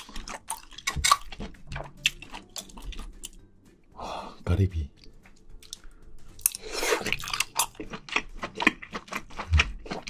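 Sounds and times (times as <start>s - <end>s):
wet chewing mouth sounds: 0.0s - 3.4s, 5.6s - 10.0s.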